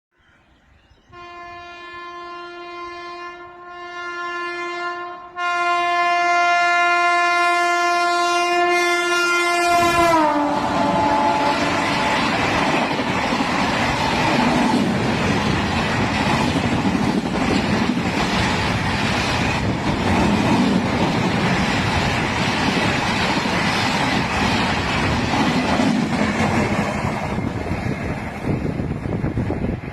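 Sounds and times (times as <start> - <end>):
locomotive horn blast: 1.1 - 12.3
train coaches clattering on rails: 10.6 - 29.9.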